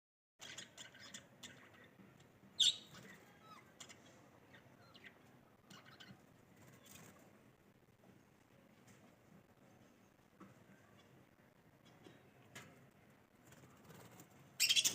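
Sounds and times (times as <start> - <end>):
birds chirping: 0.4 - 7.4, 13.7 - 14.9.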